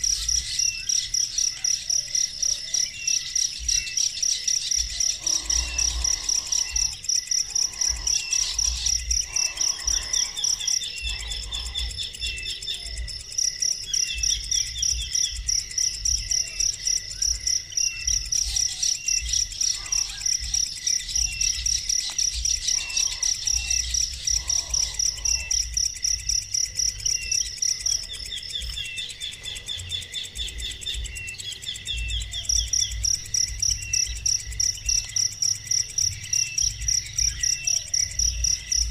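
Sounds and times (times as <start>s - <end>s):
insect chirping: 0.0s - 38.9s
trilled bird calls: 0.0s - 38.9s.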